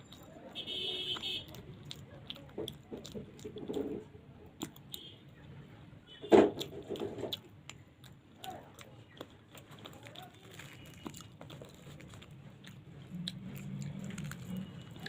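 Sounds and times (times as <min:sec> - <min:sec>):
wet chewing: 0:00.0 - 0:05.6, 0:06.4 - 0:15.0.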